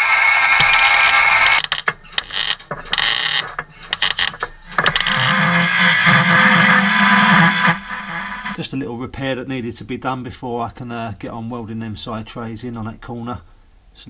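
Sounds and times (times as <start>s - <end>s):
power tool whining on sheet metal: 0.0s - 8.6s.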